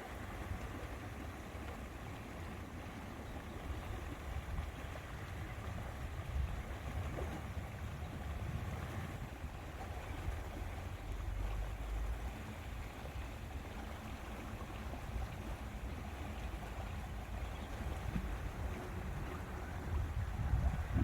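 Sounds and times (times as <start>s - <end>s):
water lapping: 0.0s - 21.0s
wind rumbling on microphone: 3.6s - 12.0s, 14.7s - 21.0s.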